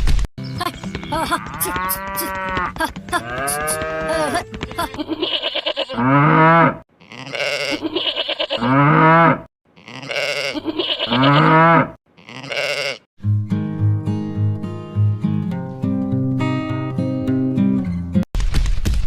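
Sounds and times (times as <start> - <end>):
farm animal bleating: 1.1 - 13.1
acoustic guitar music: 13.2 - 18.2.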